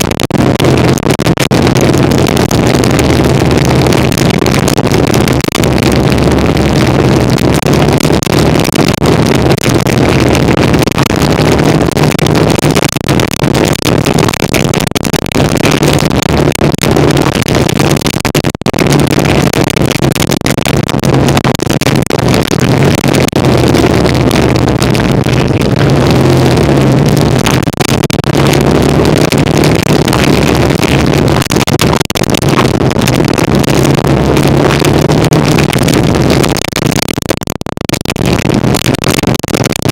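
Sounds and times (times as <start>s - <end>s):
motorcycle engine running: 22.3s - 27.6s.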